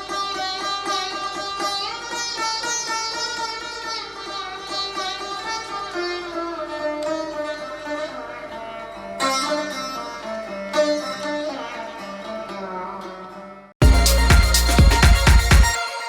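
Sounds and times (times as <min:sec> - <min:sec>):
strings struck hard: 0:13.8 - 0:16.0.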